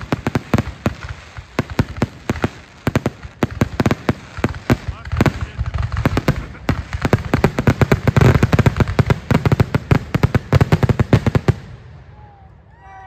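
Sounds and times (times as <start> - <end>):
fireworks bursting: 0.0 - 12.4.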